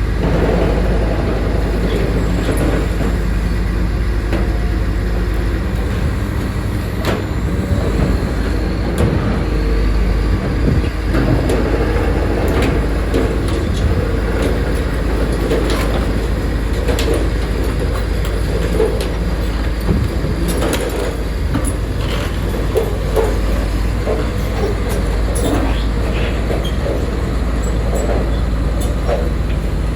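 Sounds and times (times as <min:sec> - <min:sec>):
heavy diesel machinery rumbling: 0:00.0 - 0:29.9.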